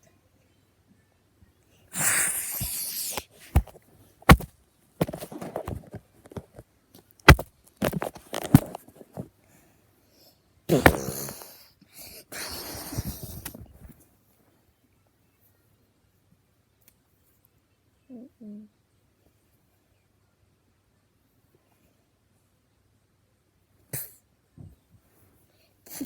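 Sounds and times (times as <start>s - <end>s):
mouth-made fight sound effects: 10.7s - 11.6s.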